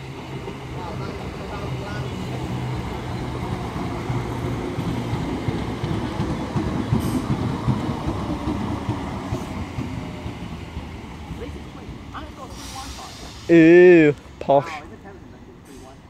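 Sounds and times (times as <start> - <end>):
train wheels rumbling over rails: 0.0 - 16.0.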